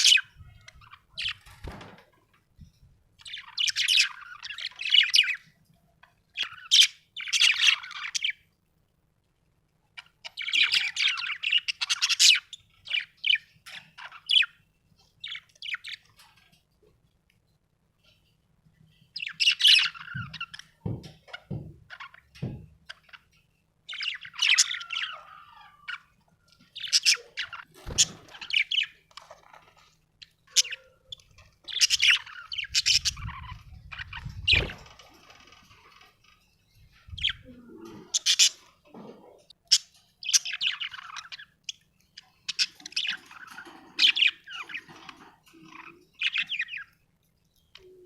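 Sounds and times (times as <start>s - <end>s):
budgerigar chirping and warbling: 0.0s - 1.6s, 6.4s - 8.4s, 23.9s - 26.1s, 26.8s - 29.3s, 30.5s - 34.8s, 37.1s - 38.7s, 39.6s - 41.8s, 42.5s - 46.9s.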